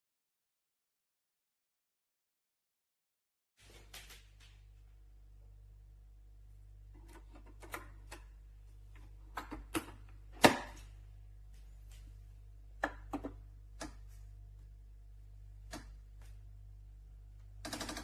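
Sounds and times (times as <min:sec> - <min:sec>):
faint steady hum: 0:03.6 - 0:18.0.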